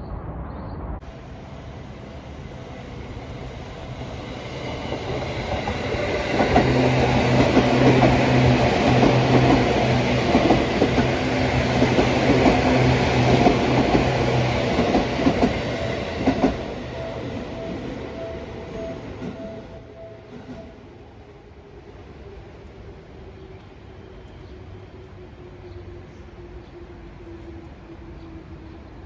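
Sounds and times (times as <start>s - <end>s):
train low hum: 0.0s - 29.0s
train wheels clattering: 4.6s - 18.0s.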